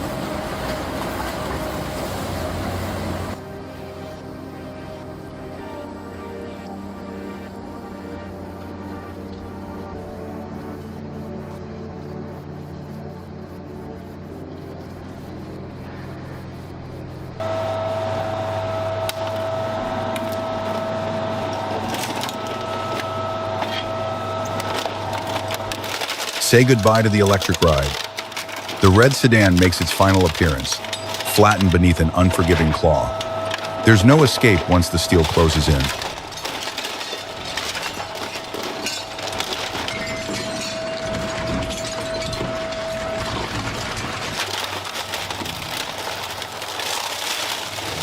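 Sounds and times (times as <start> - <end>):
shredding machinery whining: 0.0 - 11.9, 13.8 - 48.0
car body crunching and cracking: 21.9 - 48.0
sharp cracks and snaps: 43.4 - 48.0.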